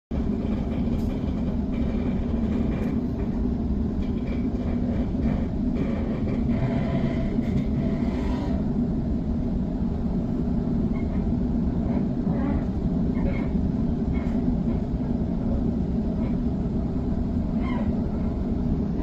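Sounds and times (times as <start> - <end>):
train carriage rumbling on rails: 0.1 - 19.0.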